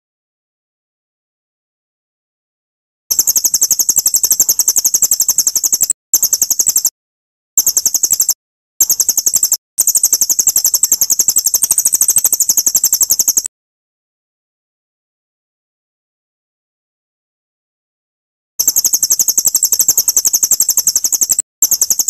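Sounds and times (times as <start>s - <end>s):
bird's rapid high-pitched trill: 3.1s - 6.9s, 7.6s - 13.5s, 18.6s - 22.0s.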